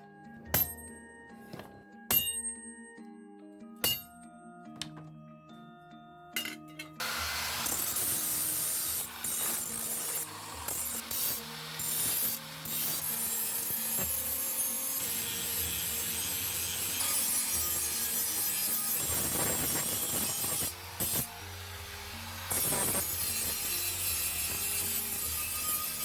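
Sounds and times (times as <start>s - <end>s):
background music: 0.0s - 26.0s
file rasping on metal blade: 7.7s - 21.3s, 22.5s - 26.0s.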